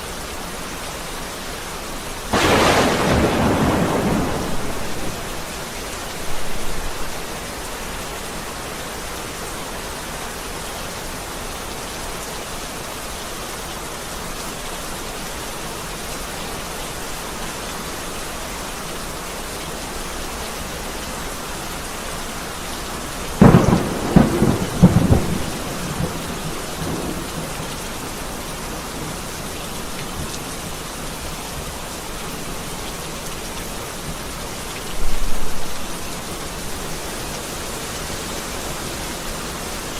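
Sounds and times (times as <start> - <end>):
heavy rain falling: 0.0 - 39.9
thunderclap rumbling: 2.3 - 7.1, 23.4 - 28.2.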